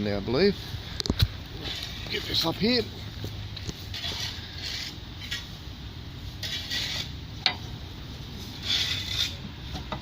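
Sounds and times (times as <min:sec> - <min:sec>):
car bonnet rubbing and scraping: 0:03.6 - 0:05.6, 0:06.3 - 0:07.2, 0:08.4 - 0:10.0.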